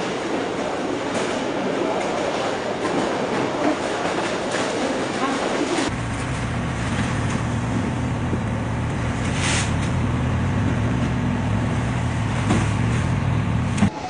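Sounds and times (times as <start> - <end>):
vehicle motor droning: 5.9 - 13.9.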